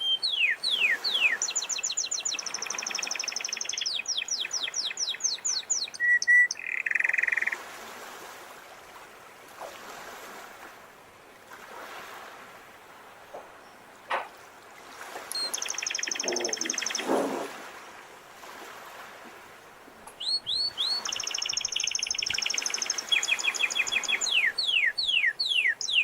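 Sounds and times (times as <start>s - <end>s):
canary singing: 0.0s - 7.6s, 15.3s - 17.1s, 20.1s - 26.0s
faint sea waves: 0.0s - 26.0s.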